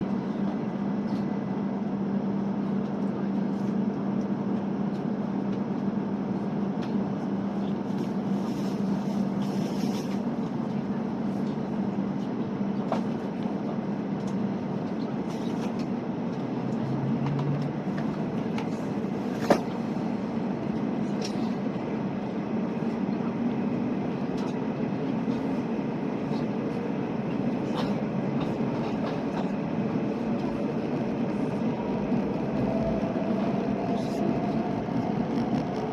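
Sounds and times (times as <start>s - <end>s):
train rumbling: 0.0s - 35.9s
low hum: 27.8s - 35.9s.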